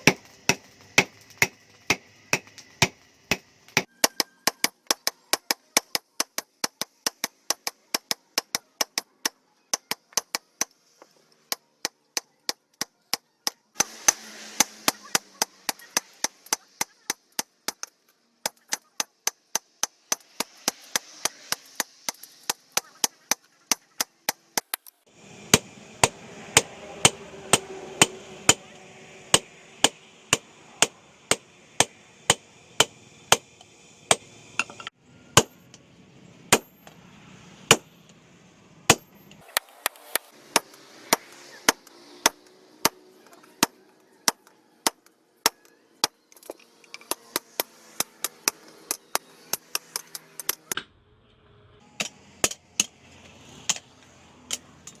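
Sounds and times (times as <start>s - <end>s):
sharp rhythmic knocks: 25.3s - 28.7s, 29.3s - 33.5s, 34.1s - 34.3s.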